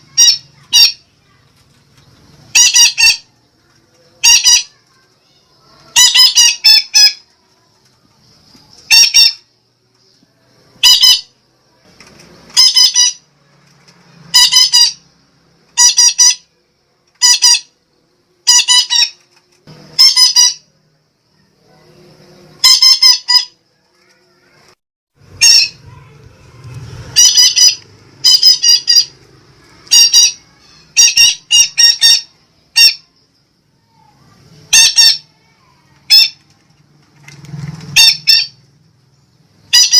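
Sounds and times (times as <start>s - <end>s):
parakeet squawking: 0.0s - 1.1s, 2.5s - 3.3s, 4.2s - 4.8s, 5.6s - 7.2s, 8.9s - 9.5s, 10.8s - 11.4s, 12.5s - 13.3s, 14.3s - 15.1s, 15.8s - 16.5s, 17.2s - 17.8s, 18.4s - 19.2s, 19.9s - 20.7s, 22.6s - 23.6s, 25.2s - 26.2s, 27.0s - 33.2s, 34.6s - 36.4s, 38.0s - 38.6s, 39.7s - 39.9s.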